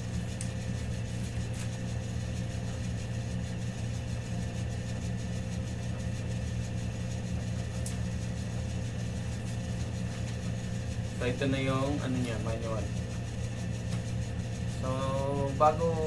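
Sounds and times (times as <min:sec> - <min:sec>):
machine humming: 0:06.2 - 0:16.0.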